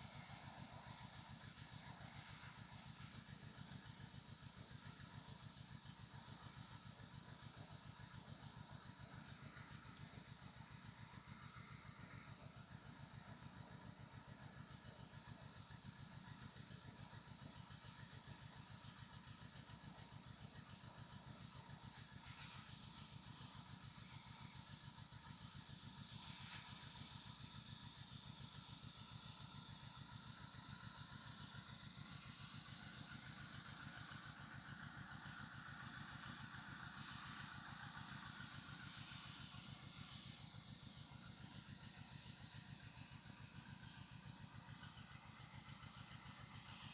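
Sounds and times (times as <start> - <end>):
crop sprayer engine running: 17.8 - 46.9.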